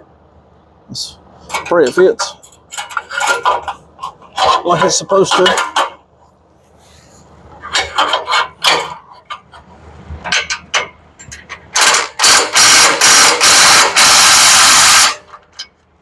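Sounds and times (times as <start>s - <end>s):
power tool tightening fastener: 11.8s - 15.2s.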